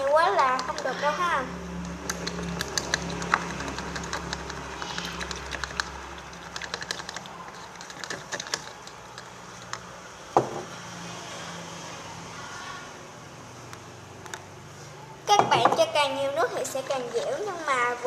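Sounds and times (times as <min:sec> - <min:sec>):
stirrer tapping a container: 0:00.0 - 0:01.0, 0:02.0 - 0:10.5
knock: 0:10.4 - 0:10.7.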